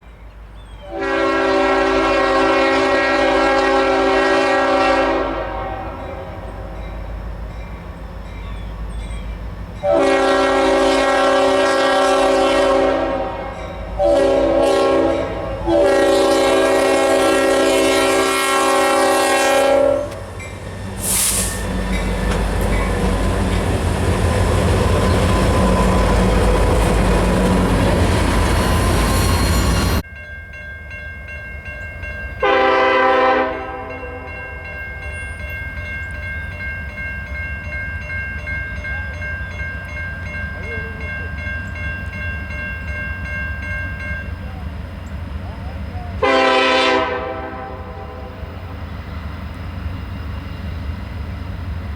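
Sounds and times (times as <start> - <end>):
train rumble passing: 0.0 - 30.3, 31.3 - 51.9
locomotive air horn blasts: 0.8 - 6.8, 9.8 - 20.3, 32.4 - 34.6, 46.2 - 48.5
wheels clacking on rails: 13.5 - 30.6.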